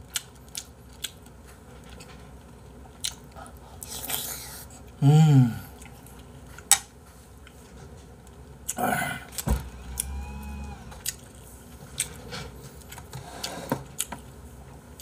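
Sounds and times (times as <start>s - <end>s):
man chewing food: 0.0s - 5.0s, 5.7s - 15.0s
man humming: 5.0s - 5.7s, 8.8s - 11.0s.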